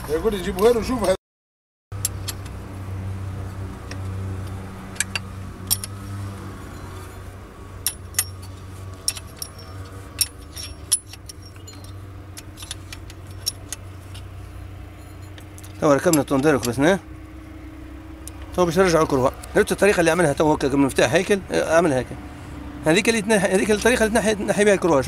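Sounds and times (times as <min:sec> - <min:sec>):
metal tools clinking: 0:04.9 - 0:16.9.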